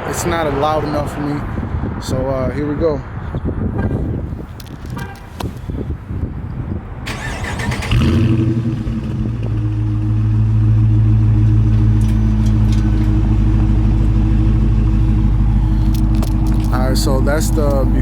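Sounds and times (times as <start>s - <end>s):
starter cranking engine: 7.1s - 9.2s
car engine idling loudly: 8.0s - 18.0s.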